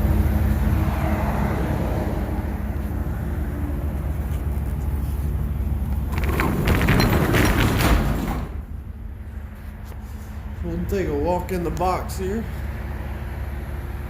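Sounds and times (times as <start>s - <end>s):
roll-up truck door rattling: 5.8s - 8.8s.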